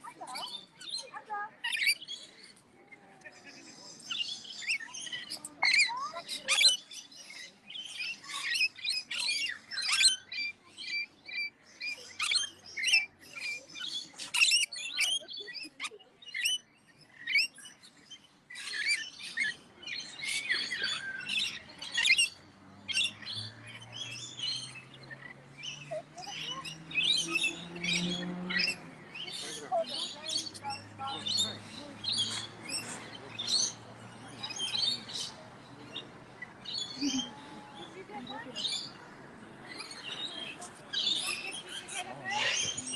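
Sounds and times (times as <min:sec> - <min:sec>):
birds chirping and squawking: 0:00.0 - 0:02.6, 0:03.3 - 0:42.9.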